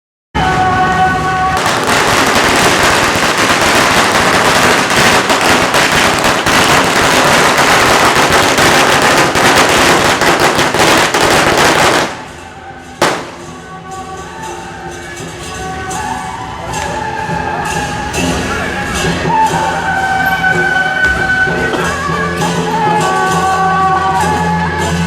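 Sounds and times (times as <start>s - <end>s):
firecrackers crackling: 0.5s - 14.3s.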